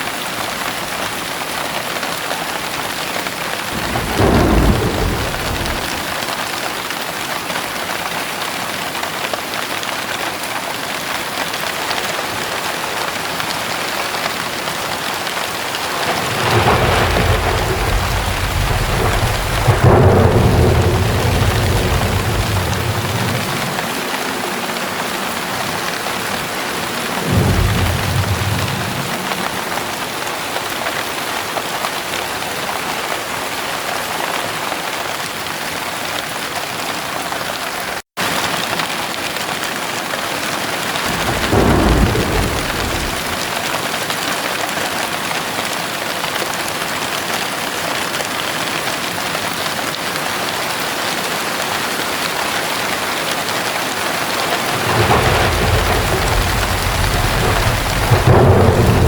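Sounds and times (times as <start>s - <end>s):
heavy rain pouring: 0.0s - 59.0s
low thunder rumbles: 3.7s - 6.4s, 12.5s - 30.4s, 41.0s - 43.7s, 54.2s - 59.0s.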